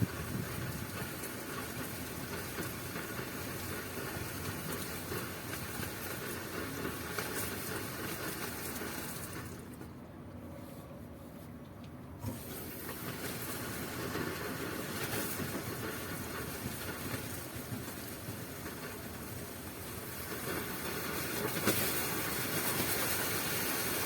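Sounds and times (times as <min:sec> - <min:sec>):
steady hiss: 0:12.2 - 0:24.0.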